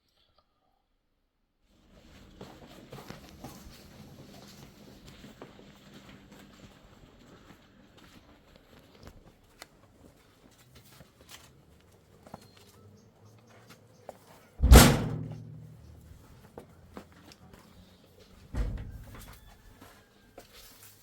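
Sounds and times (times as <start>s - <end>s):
heavy thump with low ring: 14.6s - 16.1s.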